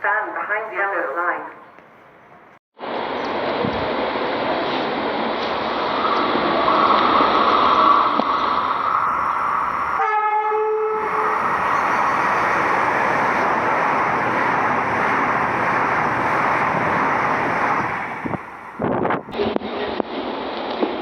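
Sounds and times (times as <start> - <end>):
train rushing past: 2.8 - 21.0
train horn: 10.0 - 11.2.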